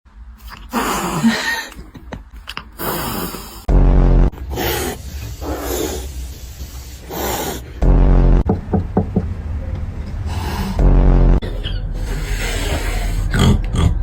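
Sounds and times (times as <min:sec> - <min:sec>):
breathy hisses: 0:02.8 - 0:03.7, 0:04.5 - 0:07.8, 0:11.9 - 0:13.4
animal growling: 0:04.4 - 0:06.2, 0:10.3 - 0:14.0.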